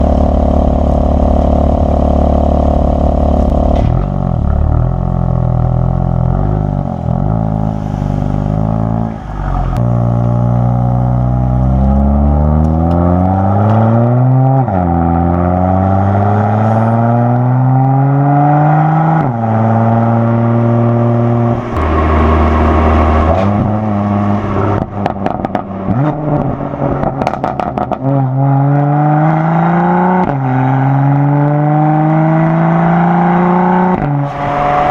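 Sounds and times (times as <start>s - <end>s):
car engine accelerating: 0.0s - 34.9s
exhaust pops and crackles: 24.8s - 28.1s.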